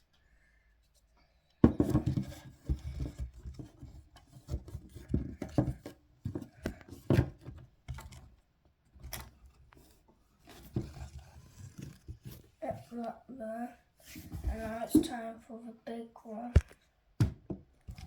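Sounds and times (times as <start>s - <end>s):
wood knocking: 1.6s - 3.8s
wood scraping on wood: 9.0s - 13.1s.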